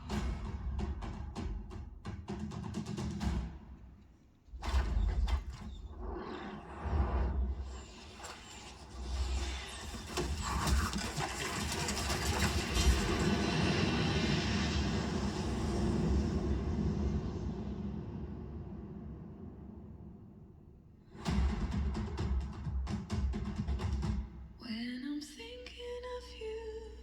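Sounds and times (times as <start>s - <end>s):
rushing noise: 6.6s - 21.5s.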